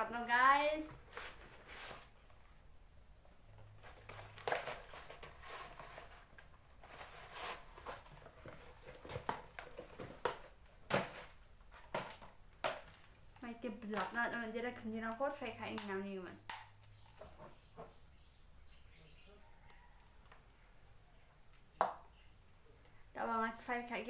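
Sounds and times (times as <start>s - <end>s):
packaging rustling and crinkling: 1.0s - 2.4s, 3.6s - 15.3s.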